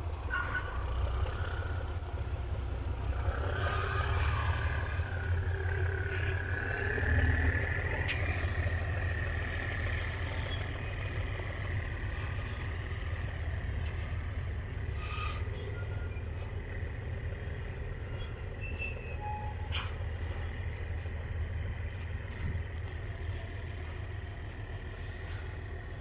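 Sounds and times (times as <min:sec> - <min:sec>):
diesel train engine rumble: 0:00.0 - 0:26.0
high thin squeal: 0:14.9 - 0:16.2.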